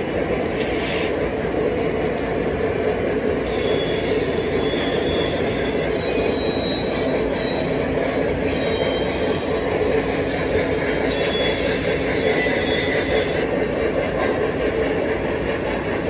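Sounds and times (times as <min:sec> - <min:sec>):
train rolling on track: 0:00.0 - 0:16.0
high wheel squeal: 0:03.4 - 0:13.7.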